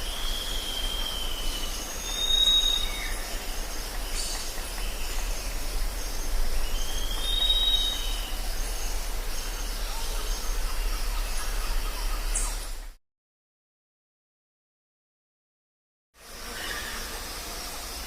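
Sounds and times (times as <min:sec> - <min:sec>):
high-pitched insects: 0:00.0 - 0:12.9, 0:16.2 - 0:18.0
bird whistles: 0:00.2 - 0:03.2, 0:06.7 - 0:08.2.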